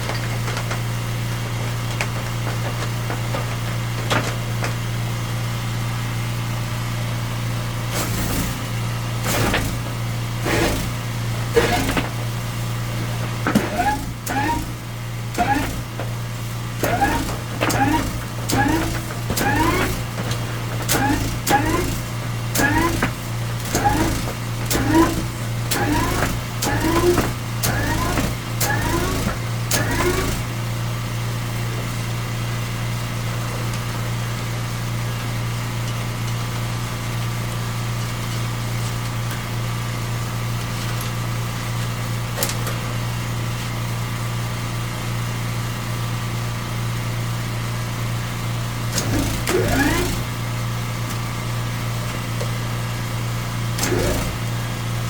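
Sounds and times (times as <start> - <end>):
engine running steadily: 0.0 - 41.1, 46.1 - 55.0.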